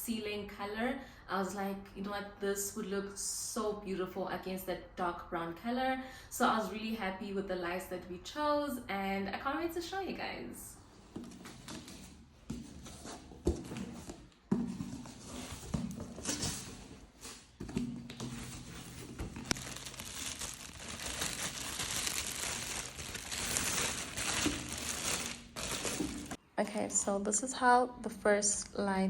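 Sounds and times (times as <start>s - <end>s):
packaging crinkling and tearing: 19.5s - 26.4s.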